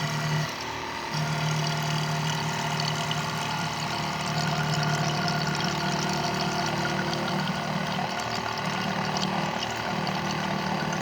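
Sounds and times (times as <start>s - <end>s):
water moving through pump: 0.0s - 11.0s
water pump motor humming: 0.0s - 11.0s.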